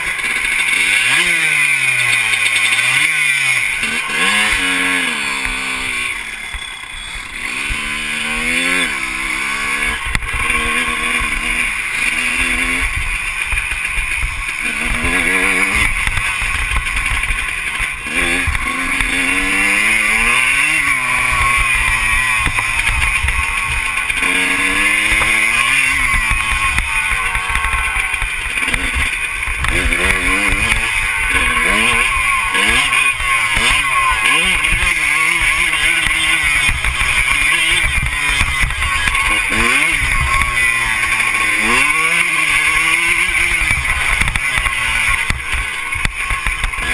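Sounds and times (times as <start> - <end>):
motocross bike engine revving: 0.0 - 46.9
steady rushing noise: 0.0 - 46.9.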